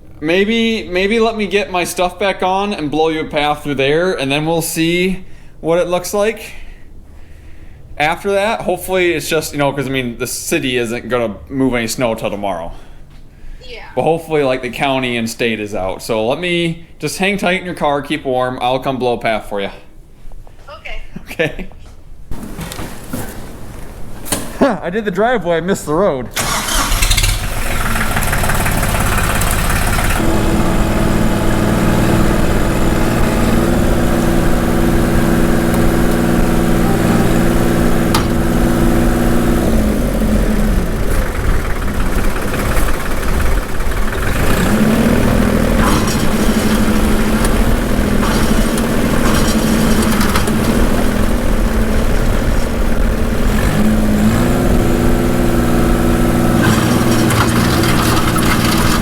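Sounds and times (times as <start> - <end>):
tractor engine running hard: 26.4 - 59.0.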